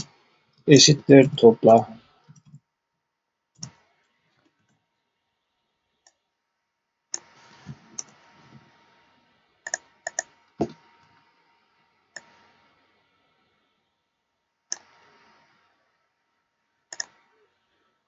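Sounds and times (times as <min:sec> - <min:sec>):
faint steady hiss: 0:00.0 - 0:02.6, 0:03.6 - 0:18.0
computer mouse clicking: 0:02.3 - 0:02.6, 0:07.1 - 0:08.2, 0:09.6 - 0:10.8, 0:12.2 - 0:12.4, 0:14.7 - 0:15.1, 0:16.9 - 0:17.3.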